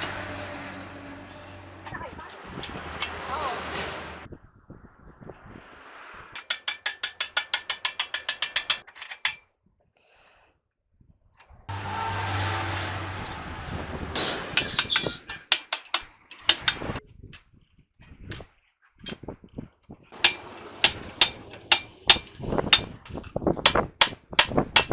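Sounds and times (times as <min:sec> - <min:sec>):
metallic clanks and knocks: 0:00.0 - 0:01.0, 0:01.9 - 0:04.0, 0:06.4 - 0:09.4, 0:14.2 - 0:17.0, 0:20.2 - 0:24.9
ratchet wrench clicking: 0:06.4 - 0:09.4, 0:14.2 - 0:16.9, 0:20.2 - 0:24.9.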